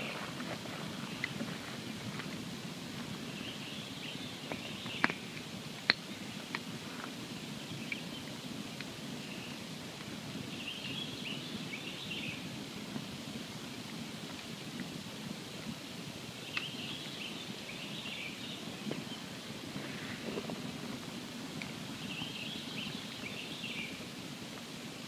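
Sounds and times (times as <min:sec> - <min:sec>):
campfire crackling and popping: 0:04.4 - 0:10.4.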